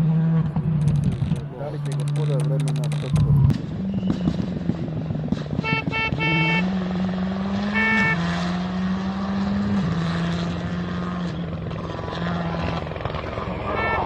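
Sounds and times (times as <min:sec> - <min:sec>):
rally car engine pulling hard: 0:00.0 - 0:14.0
car horn toots: 0:05.5 - 0:06.8, 0:07.5 - 0:08.7, 0:13.5 - 0:14.0.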